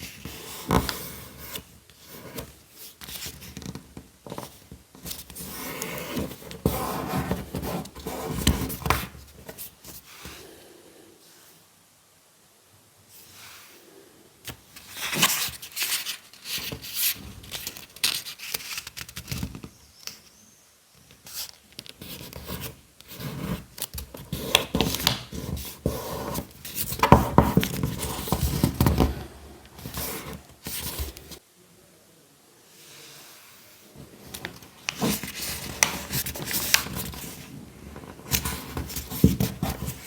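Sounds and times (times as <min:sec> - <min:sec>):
paper crinkling and rubbing: 0:14.8 - 0:19.7, 0:21.2 - 0:31.4, 0:34.0 - 0:40.0.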